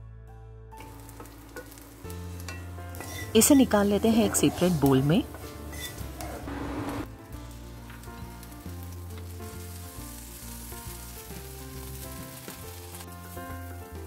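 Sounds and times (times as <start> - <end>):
soft background music: 0.0 - 14.0
chillies sizzling in pan: 0.8 - 14.0
wooden spatula stirring: 1.2 - 6.5.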